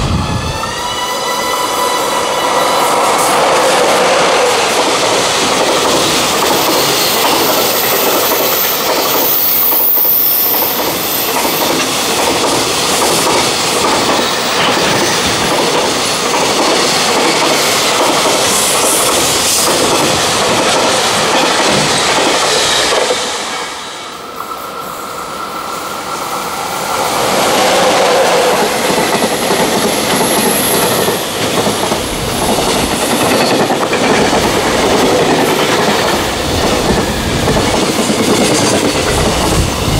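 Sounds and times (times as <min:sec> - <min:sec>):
freight train passing: 0:00.0 - 0:39.9.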